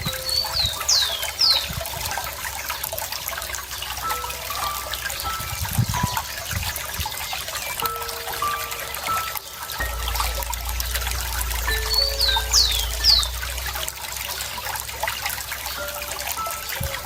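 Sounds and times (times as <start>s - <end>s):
stream trickling and bubbling: 0.0s - 17.0s
bird chirps sweeping down: 11.7s - 13.4s.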